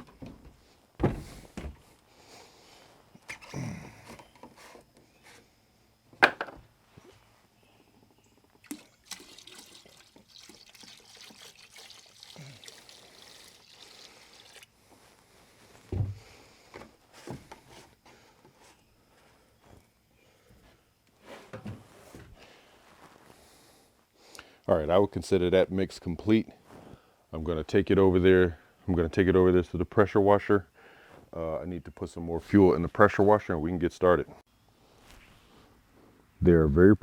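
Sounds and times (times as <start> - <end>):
liquid pouring into a bucket: 8.6 - 14.7.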